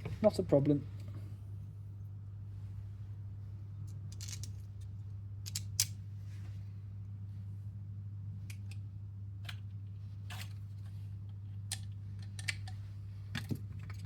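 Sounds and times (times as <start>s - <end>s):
steady low hum: 0.0s - 14.0s
small clicks of parts handled: 3.8s - 6.0s, 11.3s - 12.8s.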